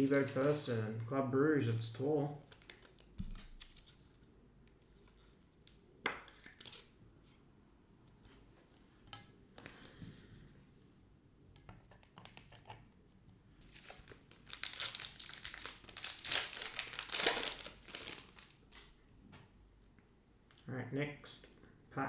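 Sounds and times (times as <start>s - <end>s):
wrapper tearing and crinkling: 0.0s - 1.1s, 2.4s - 3.8s, 13.7s - 18.9s.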